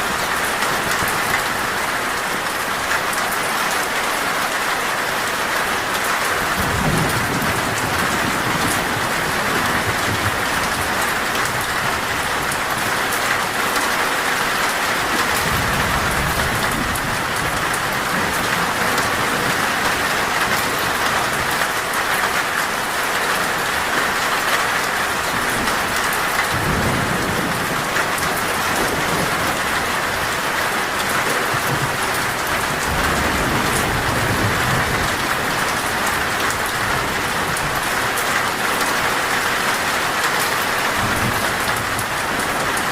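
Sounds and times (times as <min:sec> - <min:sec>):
heavy rain on a metal roof: 0:00.0 - 0:42.9
low thunder rumbles: 0:06.4 - 0:21.6, 0:25.2 - 0:38.6.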